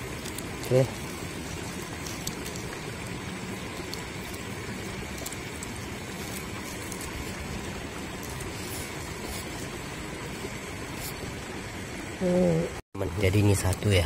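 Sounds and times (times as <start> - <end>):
raindrop ticks: 0.0 - 7.1
light rain hissing: 0.0 - 14.0.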